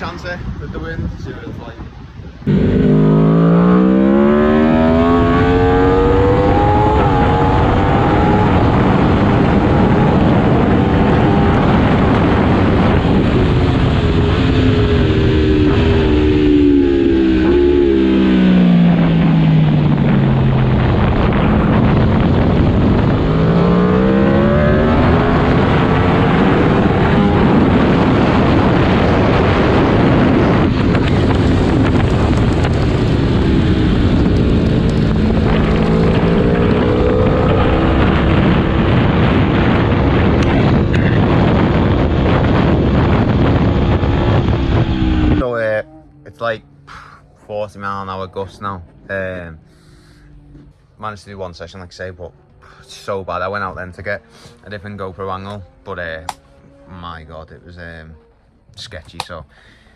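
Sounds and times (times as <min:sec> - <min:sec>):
wind rush: 0:00.0 - 0:47.6
motorcycle engine revving: 0:02.5 - 0:58.5.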